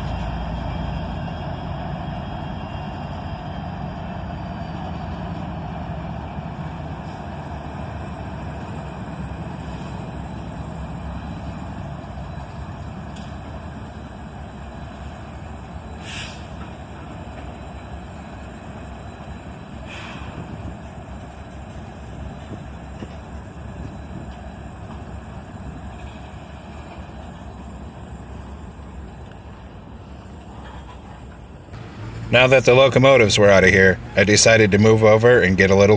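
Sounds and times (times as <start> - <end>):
freight train rumbling: 0.0 - 35.9
short hiss: 16.0 - 16.6, 19.9 - 20.3.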